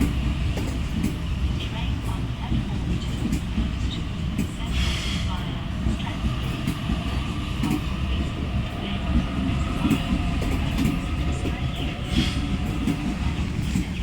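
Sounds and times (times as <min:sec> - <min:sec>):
train wheels rumbling on rail: 0:00.0 - 0:14.0
electric train whine: 0:03.6 - 0:14.0.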